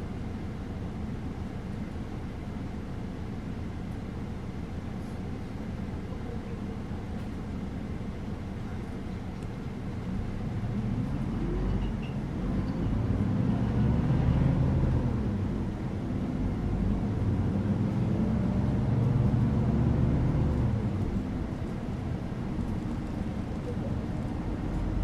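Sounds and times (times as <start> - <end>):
bus engine running: 0.0 - 25.0
road noise: 0.0 - 25.0.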